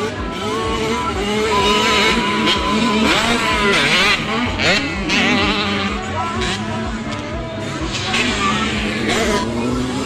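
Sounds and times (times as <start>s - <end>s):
motocross bike engines revving: 0.0s - 10.0s.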